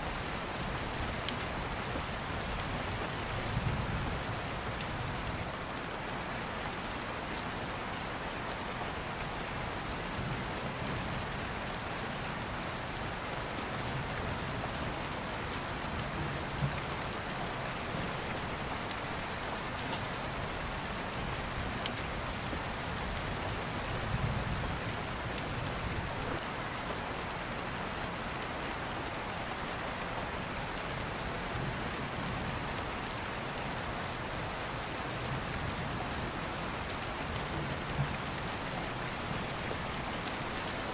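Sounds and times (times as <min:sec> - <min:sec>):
steady rain falling: 0:00.0 - 0:40.9
open fire crackling: 0:00.2 - 0:05.0.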